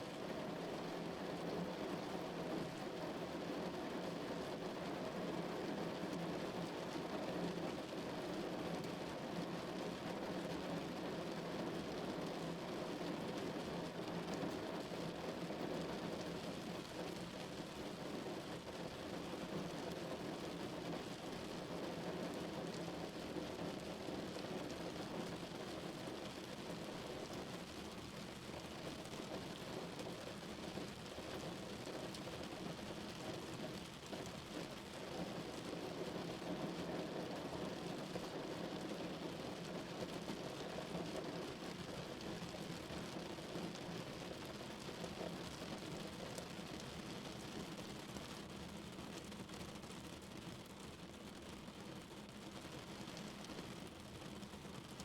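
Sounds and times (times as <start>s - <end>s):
rain on car roof: 0.1s - 55.0s.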